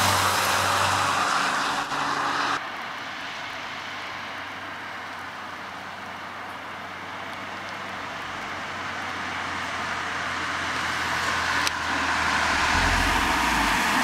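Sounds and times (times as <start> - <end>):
car road noise: 0.0 - 14.0
deep low rumble: 12.2 - 14.0.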